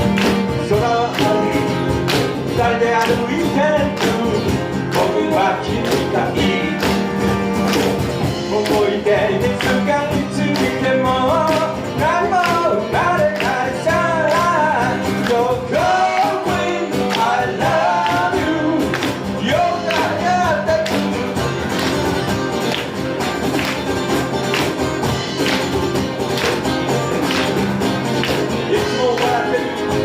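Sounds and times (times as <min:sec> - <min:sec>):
guitar playing: 0:00.0 - 0:30.0
person singing: 0:00.5 - 0:01.9, 0:02.5 - 0:07.1, 0:08.4 - 0:21.2, 0:28.6 - 0:30.0.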